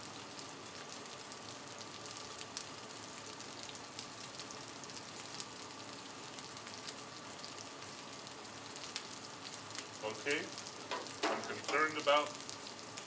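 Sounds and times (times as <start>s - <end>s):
chicken wings sizzling on griddle: 0.0s - 13.0s
popping and crackling: 8.9s - 13.0s.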